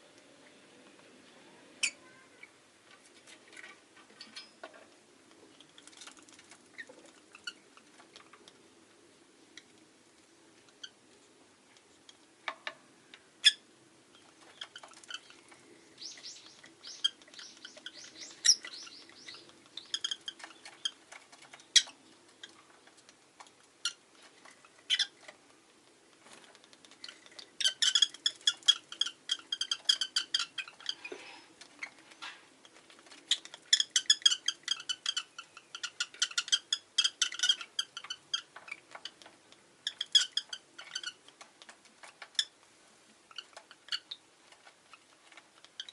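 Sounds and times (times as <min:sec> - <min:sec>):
lovebirds chirping: 0:00.1 - 0:02.6, 0:13.0 - 0:23.0, 0:26.9 - 0:32.3, 0:33.0 - 0:41.3.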